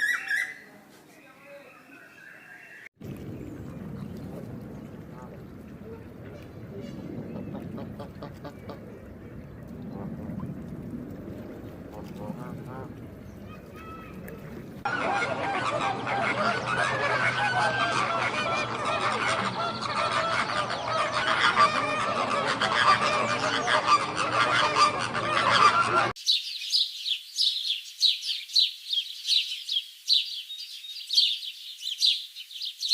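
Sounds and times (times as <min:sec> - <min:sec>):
songbird chirping: 0:00.0 - 0:14.9, 0:26.1 - 0:32.9
flock of birds honking: 0:11.8 - 0:26.2.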